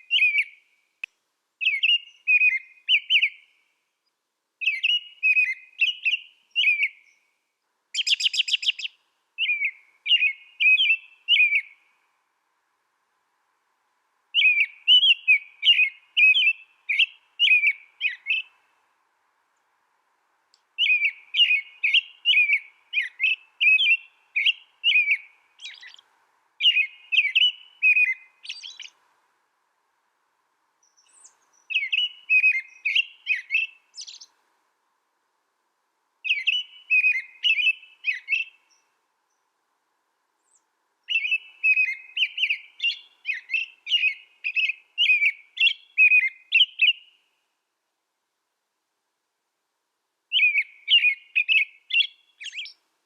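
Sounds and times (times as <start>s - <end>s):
small songbird chirping: 0.0s - 12.1s, 14.3s - 18.9s, 20.5s - 29.0s, 30.8s - 34.4s, 36.2s - 39.6s, 40.4s - 47.4s, 50.3s - 52.9s.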